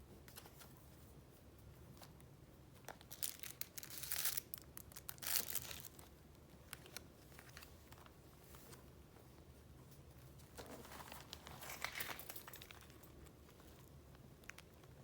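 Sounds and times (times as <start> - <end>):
paper crinkling and rustling: 2.8 - 8.9.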